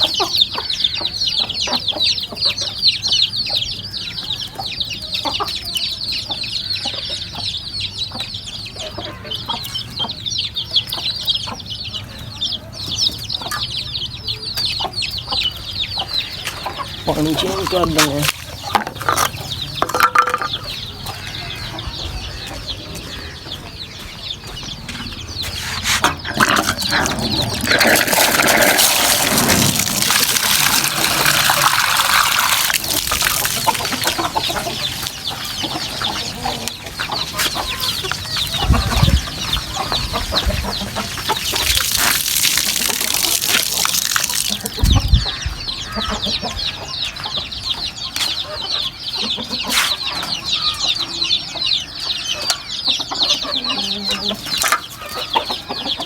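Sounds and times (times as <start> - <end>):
chickens clucking and cheeping: 0.0 - 56.0
water pouring: 26.4 - 35.5, 41.0 - 44.8.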